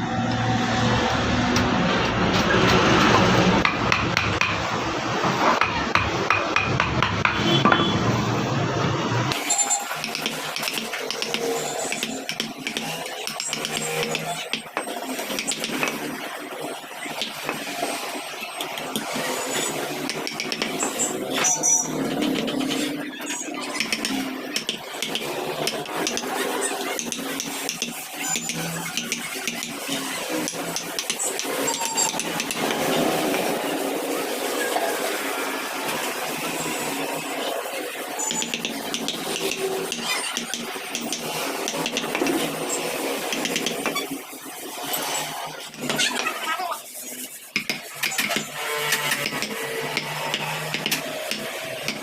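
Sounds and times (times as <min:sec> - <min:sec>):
mallet striking chisel: 0:03.6 - 0:04.7, 0:05.5 - 0:07.9, 0:09.4 - 0:16.1, 0:20.0 - 0:22.8, 0:23.7 - 0:33.5, 0:38.3 - 0:42.5, 0:43.2 - 0:44.0, 0:47.6 - 0:52.0.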